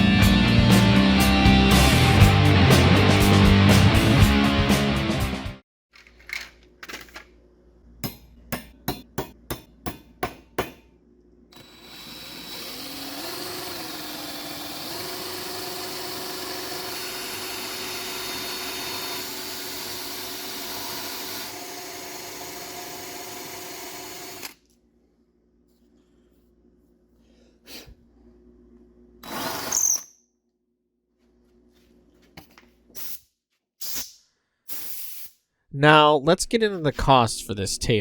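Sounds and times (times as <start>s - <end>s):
electric power tool running: 11.6s - 24.6s.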